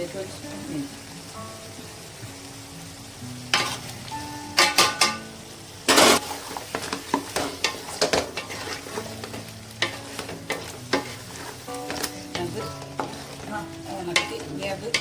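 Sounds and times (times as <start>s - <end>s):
food sizzling: 0.0s - 15.0s
spoon scraping a pan: 3.5s - 3.9s, 5.9s - 15.0s.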